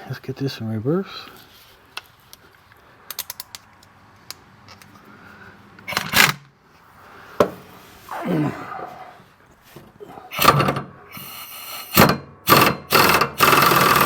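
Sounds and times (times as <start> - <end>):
pneumatic impact wrench burst: 10.3 - 14.0.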